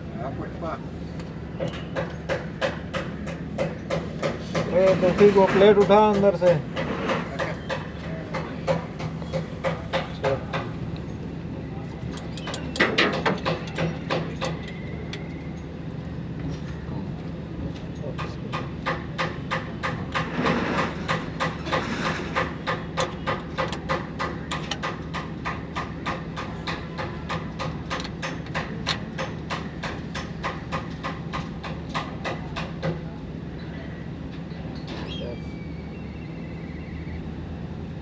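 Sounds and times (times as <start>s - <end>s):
hammer strikes: 1.6s - 10.7s, 18.2s - 33.0s.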